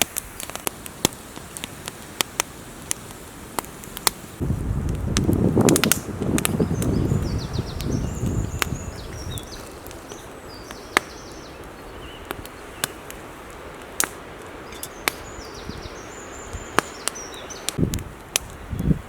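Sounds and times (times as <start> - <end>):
wind rumble: 4.3 - 14.1, 17.7 - 19.0
wood cracking and snapping: 4.8 - 7.0, 7.8 - 15.3
songbird singing: 6.0 - 13.4, 14.5 - 17.8.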